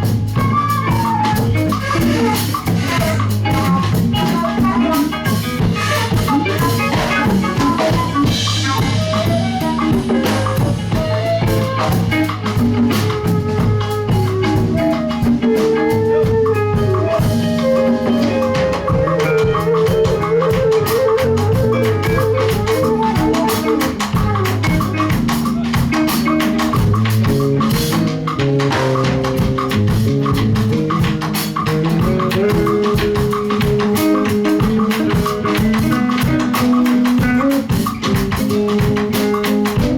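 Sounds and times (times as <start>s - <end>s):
bass line: 0.0s - 39.9s
drum kit beat: 0.0s - 39.9s
sustained melodic lead: 2.6s - 26.4s.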